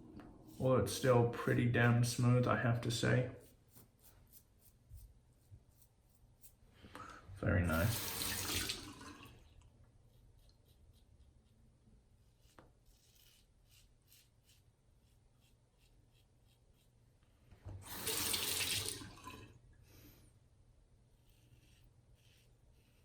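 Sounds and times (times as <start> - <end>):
razor scratching through stubble: 3.4 - 6.6, 12.2 - 17.0, 21.1 - 23.0
sink tap running: 7.8 - 9.2, 17.8 - 19.4.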